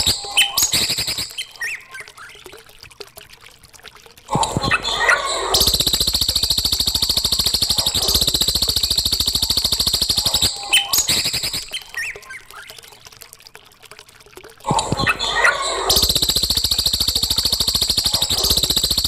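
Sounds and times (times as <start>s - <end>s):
bird trilling: 0.0s - 1.8s, 7.4s - 12.2s
bird chirps: 0.0s - 2.0s, 5.6s - 12.6s.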